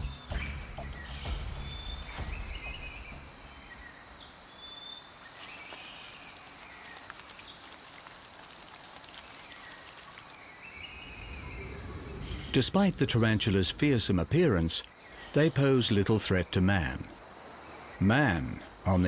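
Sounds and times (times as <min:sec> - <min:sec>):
bird chirps: 0:00.0 - 0:13.7
crackling insect chorus: 0:01.3 - 0:19.0.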